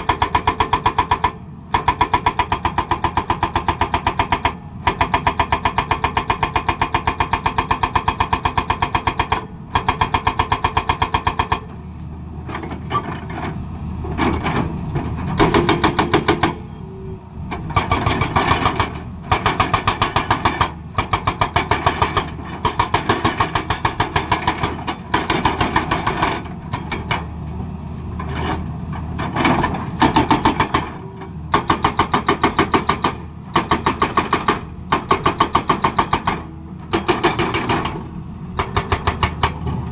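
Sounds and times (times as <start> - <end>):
excavator engine running: 0.0 - 39.9
hydraulic breaker hammering: 15.3 - 16.6, 17.7 - 27.2, 29.6 - 39.7.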